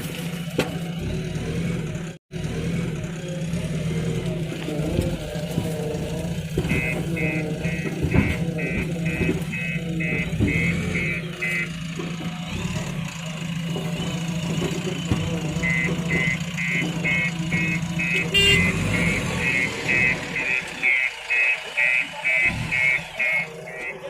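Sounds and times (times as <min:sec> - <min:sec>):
diesel engine running: 0:00.0 - 0:24.0
reversing alarm beeping: 0:05.1 - 0:24.0.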